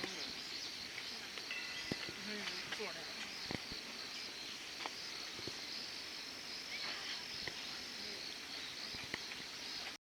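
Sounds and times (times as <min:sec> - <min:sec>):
insects chorus: 0:00.0 - 0:10.0.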